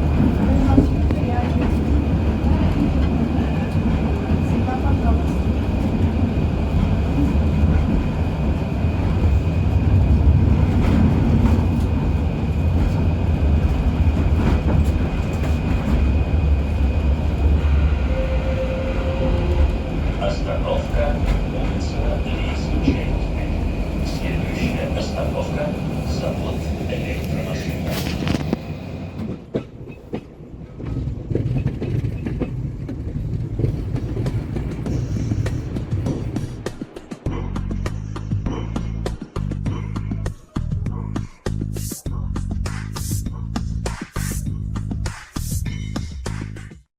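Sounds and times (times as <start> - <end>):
tram wheels rumbling: 0.0 - 46.8
wheels clicking over track: 26.5 - 37.0.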